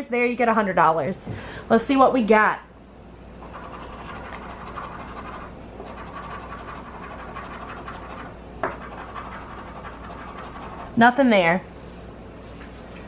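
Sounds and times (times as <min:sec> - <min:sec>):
scratching lottery ticket: 0:03.4 - 0:11.0.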